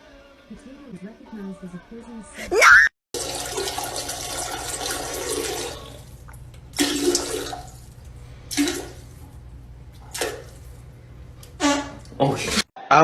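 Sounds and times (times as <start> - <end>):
water splashing: 6.7 - 7.9, 8.5 - 9.2.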